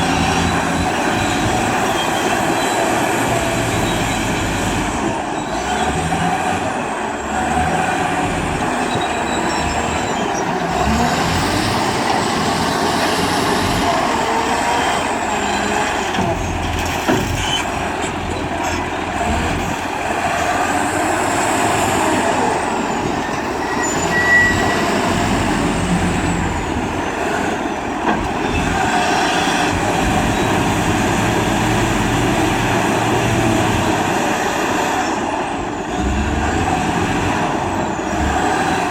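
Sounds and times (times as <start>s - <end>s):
wheel loader diesel engine: 0.0s - 38.9s.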